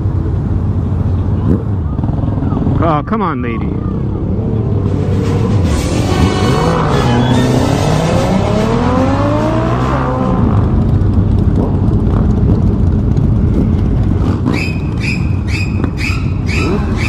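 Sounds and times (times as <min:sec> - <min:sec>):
motorcycle engine revving: 0:03.6 - 0:17.0.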